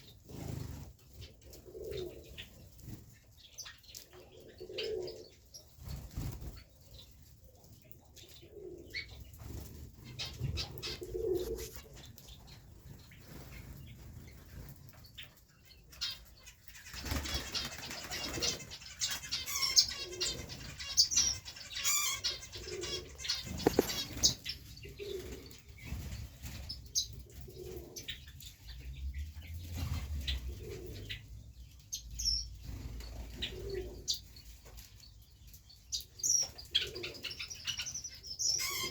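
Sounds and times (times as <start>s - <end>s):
pigeons cooing: 0.0s - 14.7s, 16.8s - 31.4s, 32.2s - 34.4s, 36.0s - 38.9s
wings flapping: 5.8s - 6.6s, 16.8s - 19.7s, 22.6s - 26.7s
high chirping: 15.9s - 27.2s.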